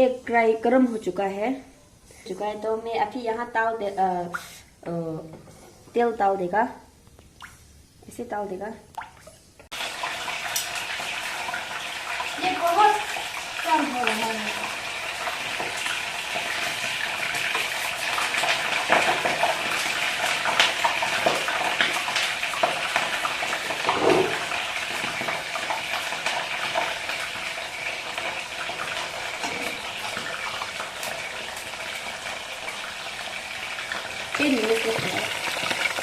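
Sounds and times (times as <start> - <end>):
hot oil sizzling: 9.4 - 36.0
utensil scraping a pan: 23.8 - 25.1.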